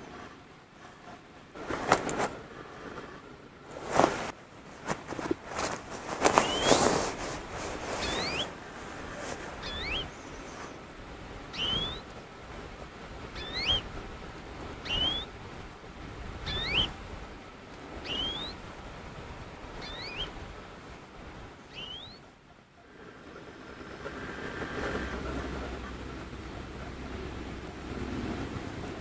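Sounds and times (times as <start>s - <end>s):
rustling and crunching: 1.6s - 2.4s, 3.6s - 10.8s
bird calling: 5.2s - 10.8s, 11.4s - 12.2s, 13.2s - 14.0s, 14.8s - 15.4s, 16.4s - 17.0s, 17.9s - 18.7s, 19.7s - 20.4s, 21.6s - 22.3s.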